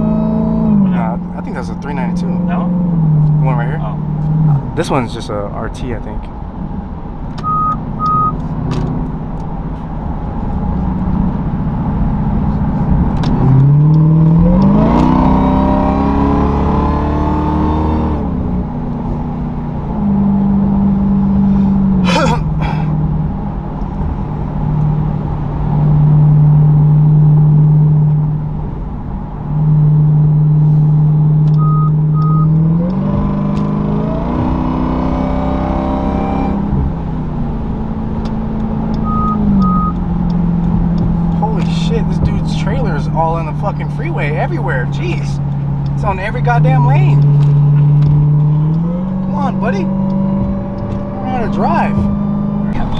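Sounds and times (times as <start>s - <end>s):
car engine accelerating: 0.0s - 52.9s
double electronic beep: 7.4s - 8.4s, 31.6s - 32.6s, 39.0s - 40.0s.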